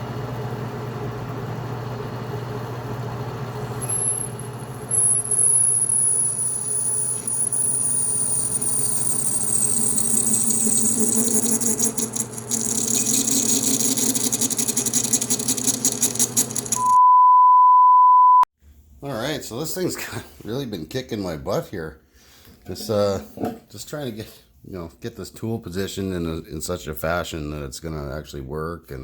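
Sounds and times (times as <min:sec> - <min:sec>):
lathe motor hum: 0:00.0 - 0:17.0
lathe tool chattering: 0:03.5 - 0:17.0
lathe tool squealing: 0:03.6 - 0:17.0
loud steady beep: 0:03.9 - 0:11.8, 0:16.8 - 0:18.5.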